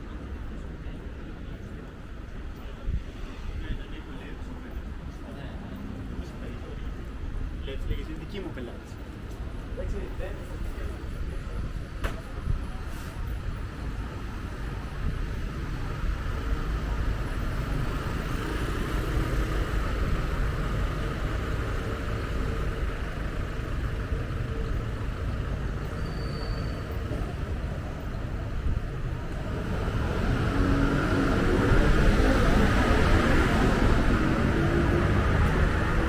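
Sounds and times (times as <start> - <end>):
car engines passing: 13.4 - 36.0.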